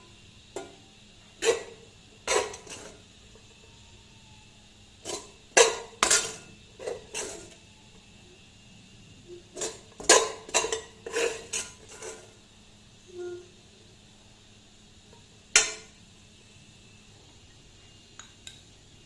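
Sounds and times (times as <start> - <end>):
dishes and utensils clinking: 1.4 - 3.0, 5.0 - 7.6, 9.5 - 12.3
faint pitched sound: 13.0 - 13.6.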